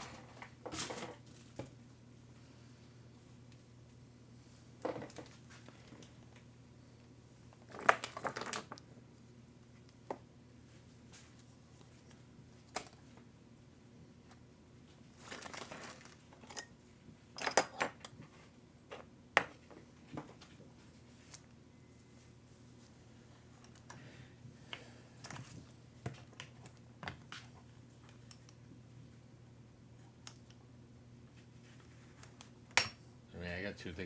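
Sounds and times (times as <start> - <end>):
crinkling rustle: 15.2 - 16.4.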